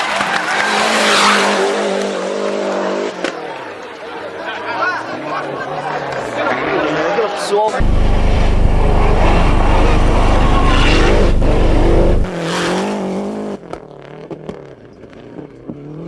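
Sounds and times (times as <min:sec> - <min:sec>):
rally car engine at full speed: 0:00.0 - 0:16.0
heavy low rumble: 0:07.8 - 0:12.4.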